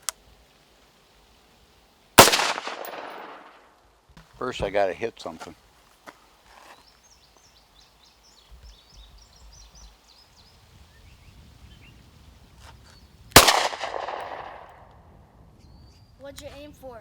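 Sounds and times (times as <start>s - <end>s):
loud gunshot echoing: 2.2s - 3.5s, 13.4s - 14.7s
small birds chirping: 6.0s - 13.3s, 15.6s - 17.0s.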